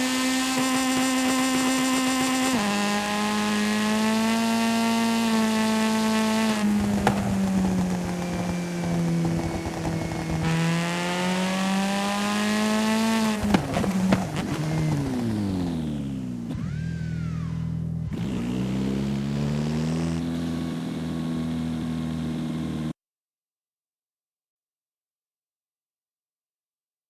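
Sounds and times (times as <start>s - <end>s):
remote-control car motor drone: 0.0s - 17.4s.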